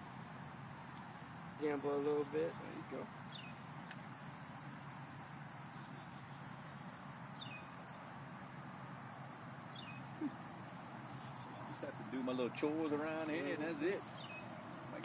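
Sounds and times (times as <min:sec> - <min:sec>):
faint insect chirring: 0:00.0 - 0:15.0.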